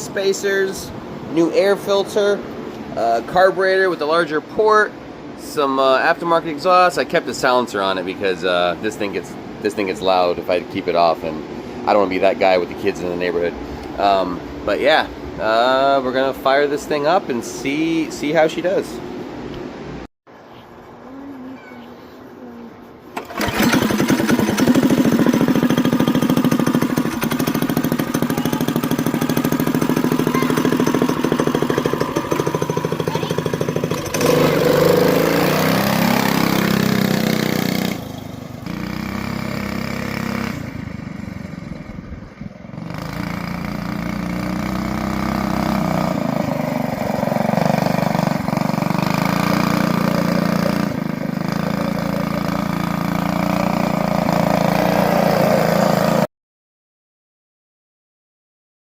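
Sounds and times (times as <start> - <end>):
small gas engine revving: 23.2 - 56.3.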